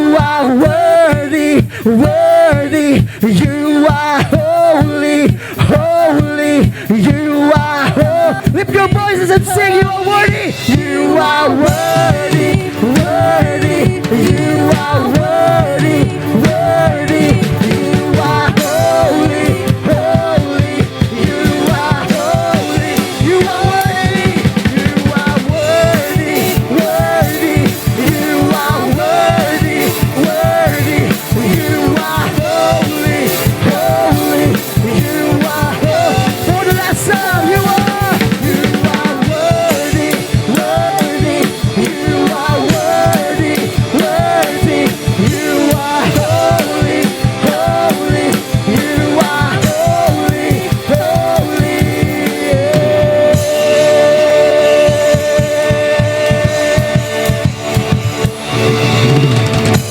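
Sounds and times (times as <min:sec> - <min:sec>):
band playing instrumental: 0:00.0 - 0:59.9
drum kit beat: 0:00.0 - 0:59.9.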